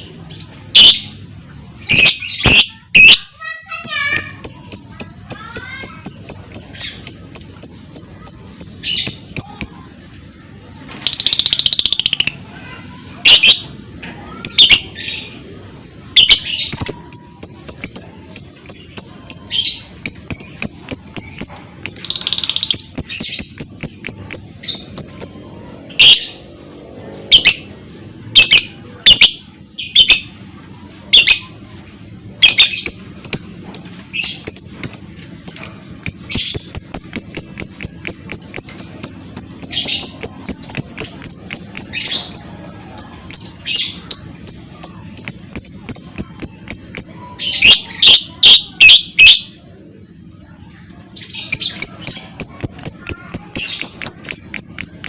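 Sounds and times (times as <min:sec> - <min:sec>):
lovebird chirping and chattering: 0:00.0 - 0:10.0, 0:10.9 - 0:15.4, 0:16.0 - 0:26.4, 0:27.3 - 0:30.4, 0:32.4 - 0:55.0.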